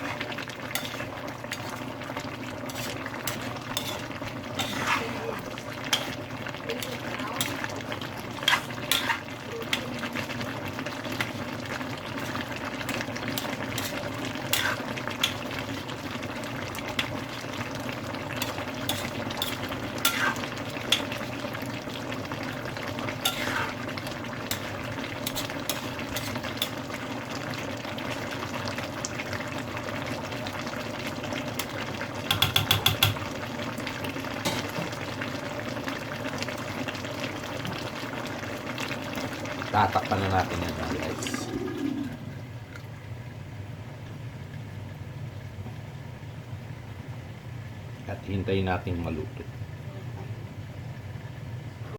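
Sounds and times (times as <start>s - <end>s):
curry sizzling in a pan: 0.0s - 51.9s
utensil clinking and scraping pan: 0.7s - 1.8s, 2.7s - 6.2s, 8.3s - 9.3s, 18.4s - 21.2s, 23.2s - 23.8s, 24.5s - 26.8s
rattle of taps: 32.3s - 33.2s.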